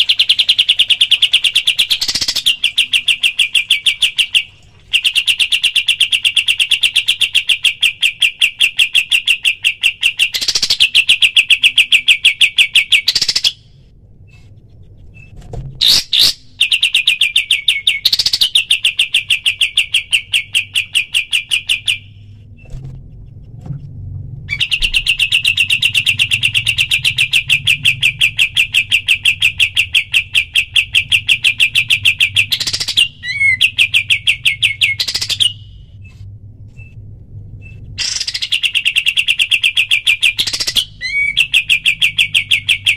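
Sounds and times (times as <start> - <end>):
loud bird call: 38.0 - 42.9.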